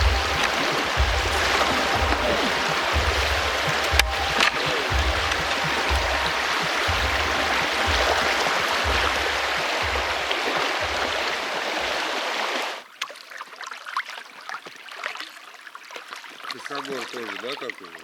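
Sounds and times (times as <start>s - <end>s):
dull low thumps: 0.0s - 12.0s
river water rushing: 0.0s - 12.8s.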